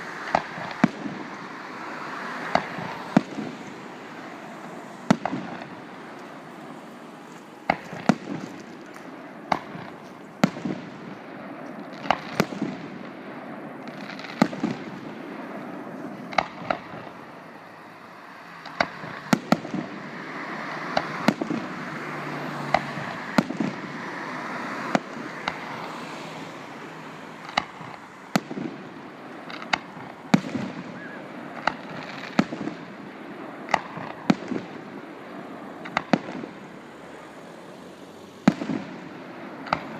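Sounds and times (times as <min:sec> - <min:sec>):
fireworks crackling: 0:00.0 - 0:39.9.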